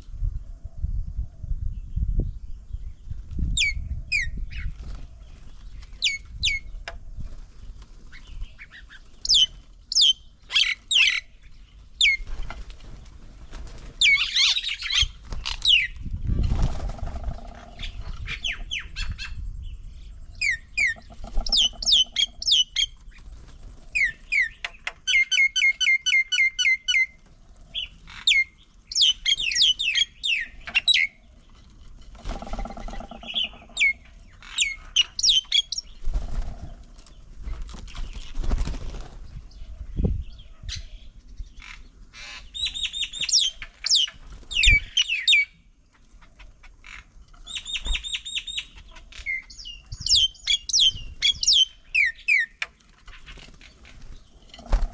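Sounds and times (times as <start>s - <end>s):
birds calling: 2.8s - 54.9s
birds squawking: 20.4s - 23.0s, 32.1s - 36.9s, 41.6s - 45.5s
rattling bird call: 20.8s - 22.7s, 32.0s - 35.7s.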